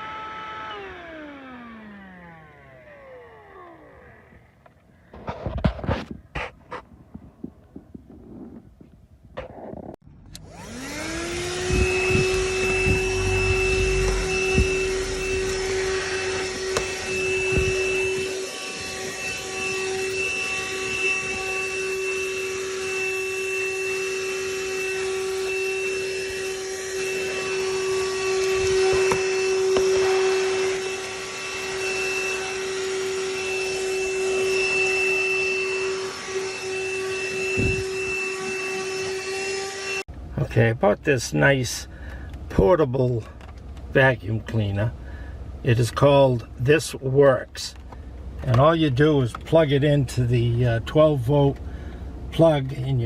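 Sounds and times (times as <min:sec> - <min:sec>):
handheld vacuum motor whine: 0:00.0 - 0:06.0, 0:10.2 - 0:40.1
low rumbles: 0:10.0 - 0:18.2.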